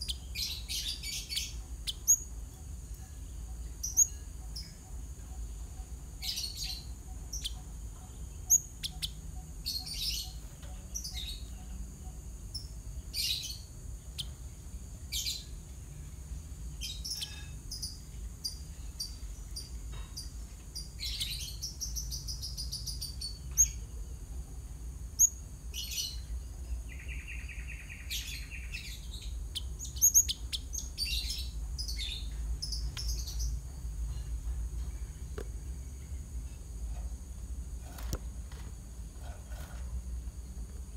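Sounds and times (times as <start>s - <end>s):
sparrow chirping: 0.0s - 2.5s, 3.3s - 14.5s, 15.1s - 15.6s, 16.8s - 23.9s, 25.2s - 33.8s
steady low hum: 0.0s - 40.9s.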